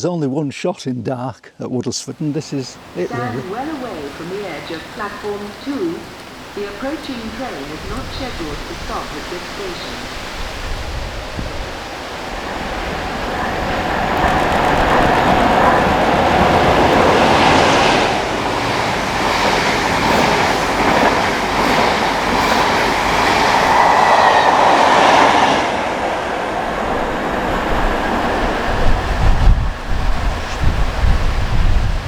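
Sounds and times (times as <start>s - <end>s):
train wheel and rail noise: 2.1s - 32.0s.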